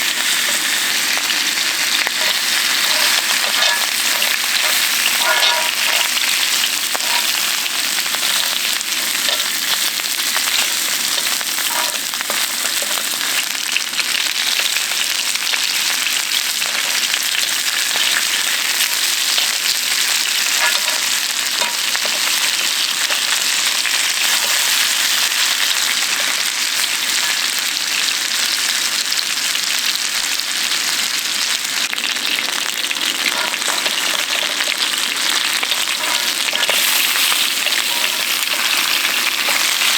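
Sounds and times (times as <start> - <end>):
food sizzling in hot fat: 0.0 - 39.9.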